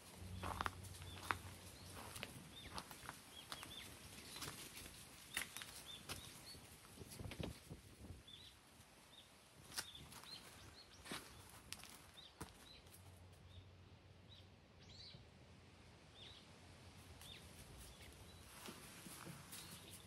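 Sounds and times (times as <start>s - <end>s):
footsteps on paving and leaves: 0.0s - 6.4s, 9.7s - 13.2s, 17.6s - 20.0s
small bird chirping: 0.3s - 6.8s.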